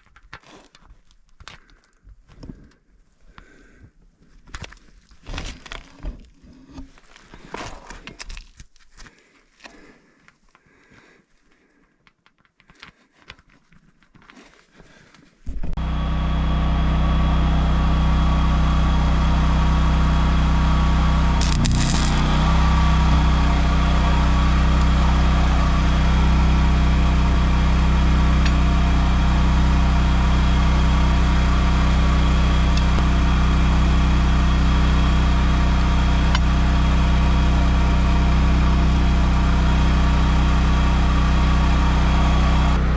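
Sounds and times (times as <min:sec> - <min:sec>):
engine running steadily: 0:15.8 - 0:42.9.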